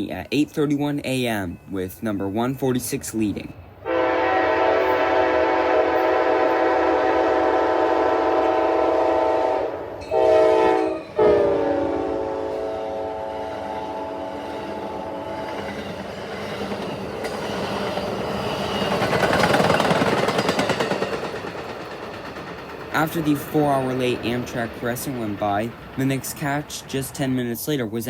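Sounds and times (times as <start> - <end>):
passing train rumble: 0.0 - 28.0
train horn blasts: 3.8 - 15.9.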